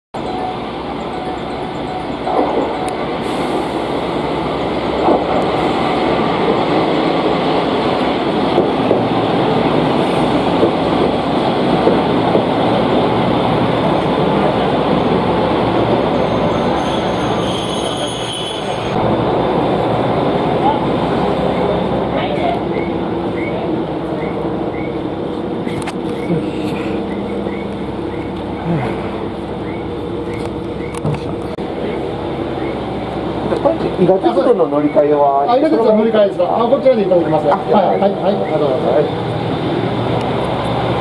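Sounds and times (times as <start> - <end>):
diesel railcar rumble: 0.2 - 41.0
knocks and clicks from rails: 5.0 - 9.8, 10.4 - 12.7
high brake squeal: 16.1 - 19.0.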